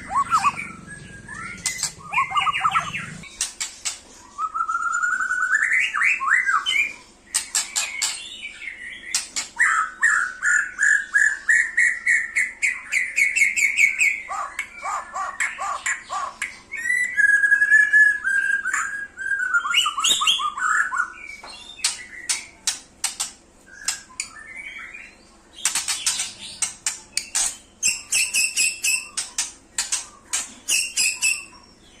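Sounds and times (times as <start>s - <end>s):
songbird whistling and chattering: 0.0s - 3.6s, 4.2s - 22.6s, 23.7s - 31.8s.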